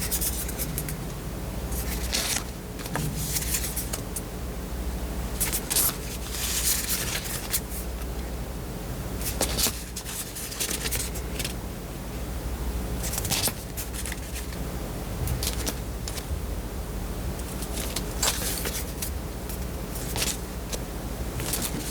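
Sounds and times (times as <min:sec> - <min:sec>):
low steady hum: 0:00.0 - 0:21.9
paper and plastic crinkling: 0:05.4 - 0:07.9, 0:09.2 - 0:11.6, 0:13.0 - 0:14.6, 0:15.3 - 0:16.3, 0:17.5 - 0:20.4, 0:21.4 - 0:21.9.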